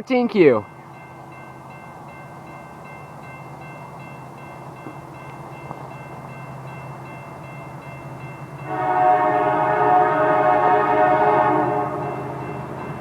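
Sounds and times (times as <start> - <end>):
crossing bell ringing: 0.0 - 13.0
diesel train rumbling: 0.0 - 13.0
train horn blasting: 8.6 - 13.0.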